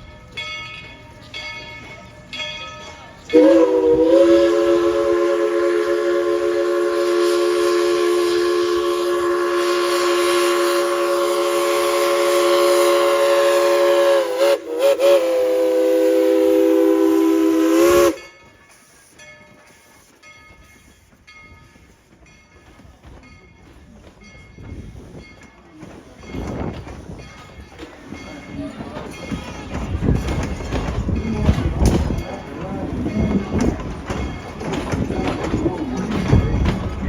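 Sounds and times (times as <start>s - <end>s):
train running: 0.0s - 37.0s
steam locomotive chime whistle: 2.4s - 20.2s.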